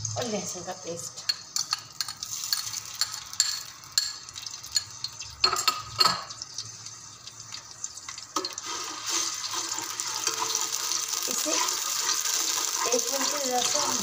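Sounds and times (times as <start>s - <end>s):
spoon scraping and clicking: 1.3s - 6.4s
paste sizzling in hot oil: 1.5s - 5.4s, 6.3s - 14.0s.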